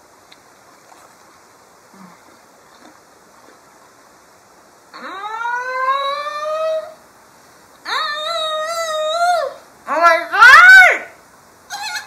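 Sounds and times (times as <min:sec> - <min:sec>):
chewing food close-up: 0:00.3 - 0:03.7.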